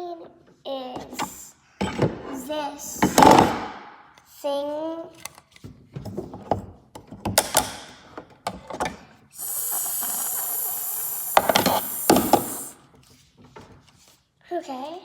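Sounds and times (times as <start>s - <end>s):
water running from a tap: 9.4s - 12.8s.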